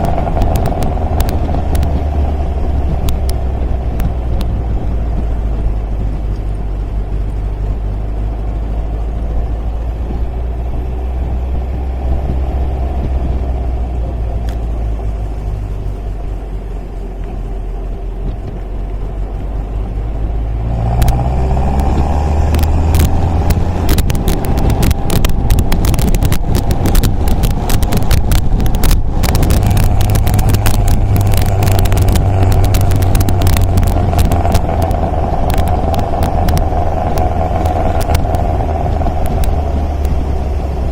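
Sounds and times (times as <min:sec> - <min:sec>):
dense crackle: 0:00.0 - 0:07.5, 0:18.1 - 0:40.9
car engine droning: 0:00.0 - 0:40.9.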